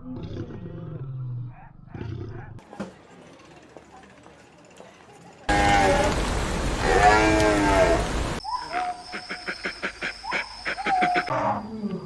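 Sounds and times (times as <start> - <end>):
drawn-out animal calls: 5.5 - 8.4
loud steady hiss: 5.5 - 8.4.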